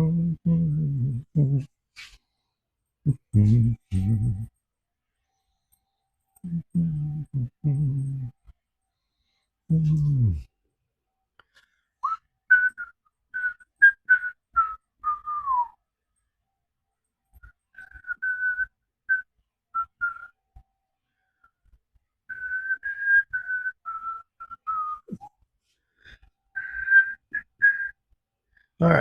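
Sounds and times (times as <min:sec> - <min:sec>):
person whistling a tune: 0:12.0 - 0:15.8, 0:17.4 - 0:20.4, 0:22.3 - 0:25.4, 0:26.6 - 0:28.0.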